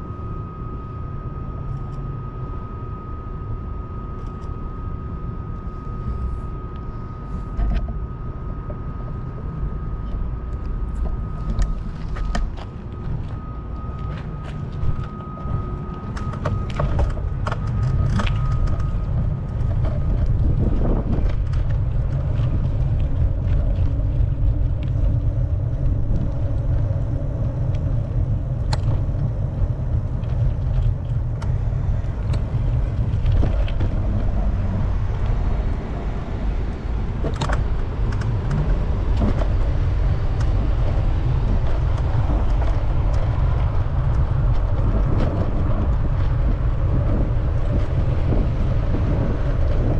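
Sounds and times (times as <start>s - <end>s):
faint steady whine: 0.0s - 49.9s
wind rumbling on microphone: 0.0s - 49.9s
bicycle clicks and rattles: 15.9s - 34.2s.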